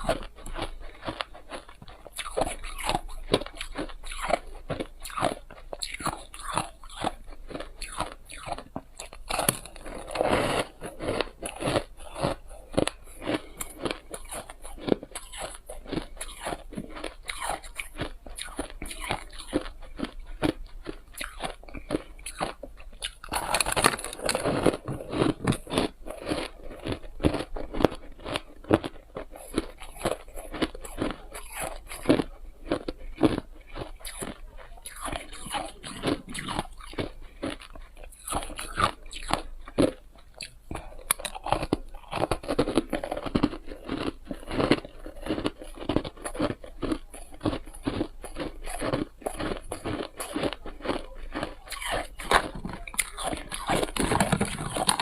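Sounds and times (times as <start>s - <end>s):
person crunching ice: 0.0s - 40.5s, 41.1s - 55.0s.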